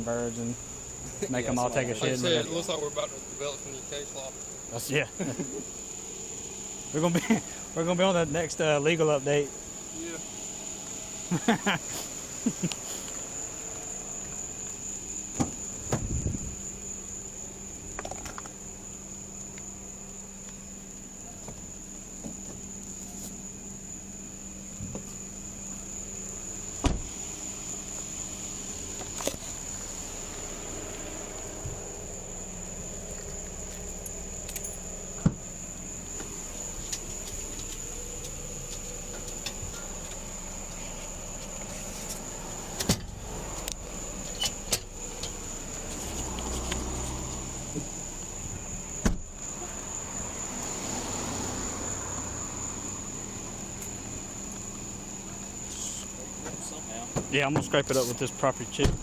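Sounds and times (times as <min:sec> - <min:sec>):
high-pitched insect chirring: 0:00.0 - 0:58.8
rubbing sounds: 0:40.7 - 0:42.3.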